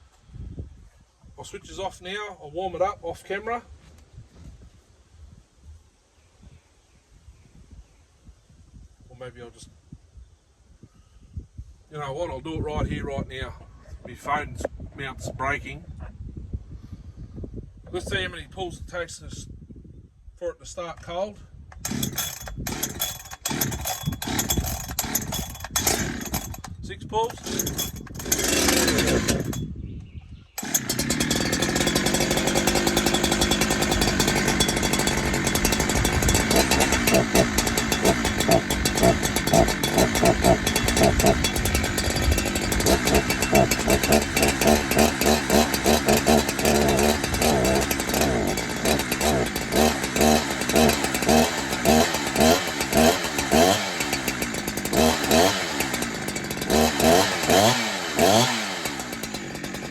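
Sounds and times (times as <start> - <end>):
chainsaw engine revving: 21.8 - 29.6, 30.6 - 59.9.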